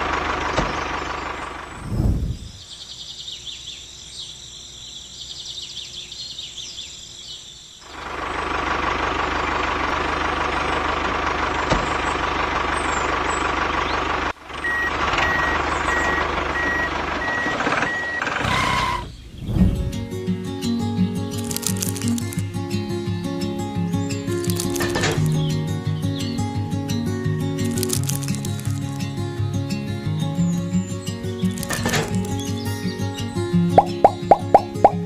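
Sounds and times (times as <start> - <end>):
vehicle engine running: 0.0 - 2.0, 7.8 - 18.4, 21.3 - 22.6, 23.7 - 33.0
reversing alarm beeping: 14.6 - 19.0.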